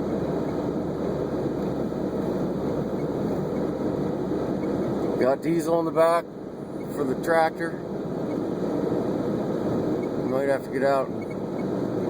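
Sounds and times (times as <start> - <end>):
car driving through snow: 0.0 - 6.1.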